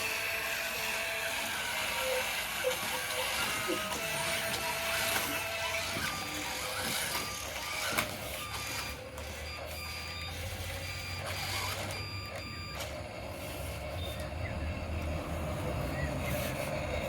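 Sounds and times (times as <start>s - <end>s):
toy vehicle electric motor: 0.0s - 17.0s
short electronic beeps: 6.7s - 14.2s.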